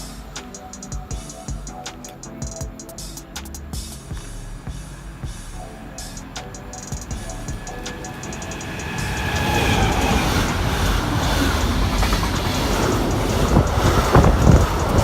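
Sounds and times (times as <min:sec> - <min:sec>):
train passing: 0:06.6 - 0:15.0.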